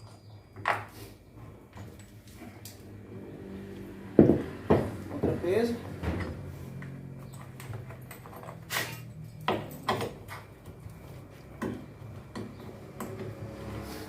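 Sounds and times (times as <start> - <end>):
tools and parts knocking: 7.2 - 10.8, 11.6 - 13.4.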